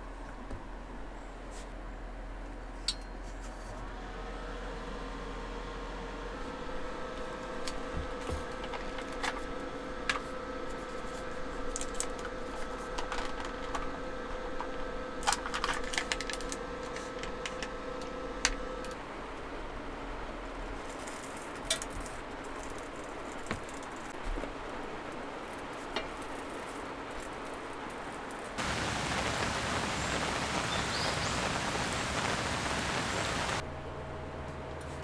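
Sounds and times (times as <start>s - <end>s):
steady electrical hum: 28.6s - 33.6s.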